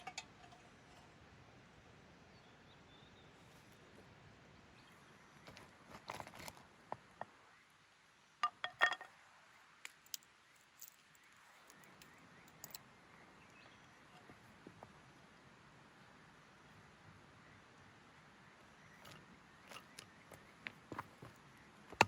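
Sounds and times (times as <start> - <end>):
small clicks and crunches: 5.5 - 6.7.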